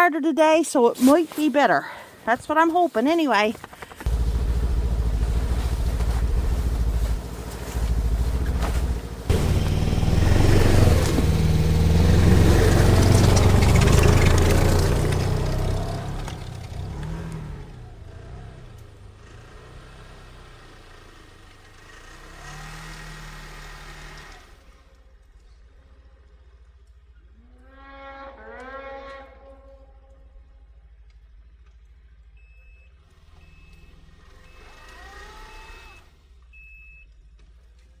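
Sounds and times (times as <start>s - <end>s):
snowmobile engine revving: 1.0s - 24.6s, 33.2s - 36.1s.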